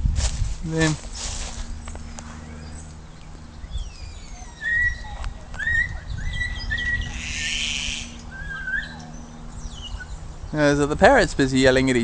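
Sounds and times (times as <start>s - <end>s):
low rumble: 0.0s - 11.8s
parrots whistling calls: 3.7s - 10.2s
parrot harsh screech: 6.7s - 9.0s.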